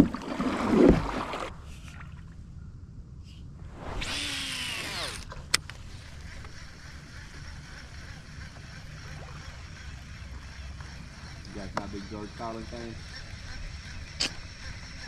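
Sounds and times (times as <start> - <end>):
water sloshing and splashing: 0.0 - 2.4, 5.3 - 11.3
fishing reel spool whirring: 4.0 - 15.0.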